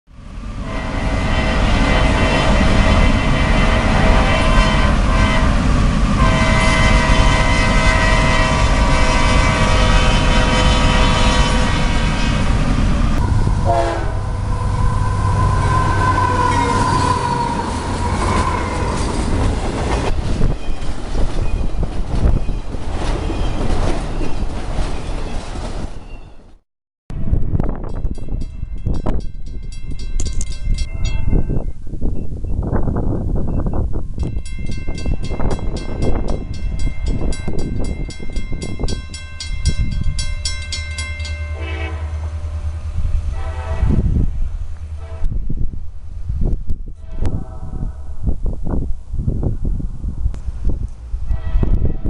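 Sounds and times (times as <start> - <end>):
train cars rumbling over rails: 0.1 - 52.0
train horn blasts: 0.6 - 19.2, 41.2 - 45.5, 47.0 - 48.2, 51.2 - 52.0.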